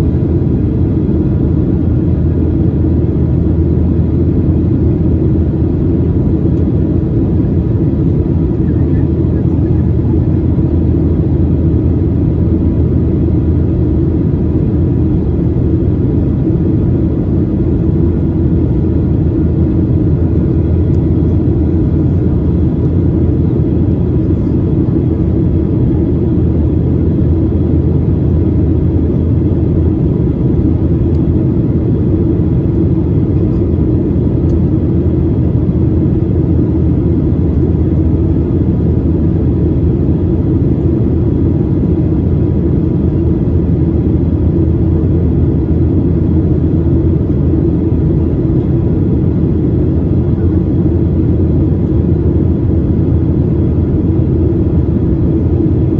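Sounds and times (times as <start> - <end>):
airplane cabin engine rumble: 0.0 - 55.9
faint steady whine: 0.0 - 55.9.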